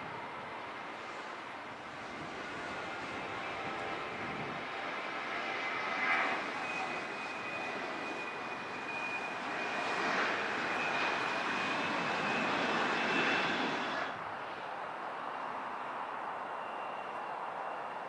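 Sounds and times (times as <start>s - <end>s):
aircraft engine running: 0.0s - 18.0s.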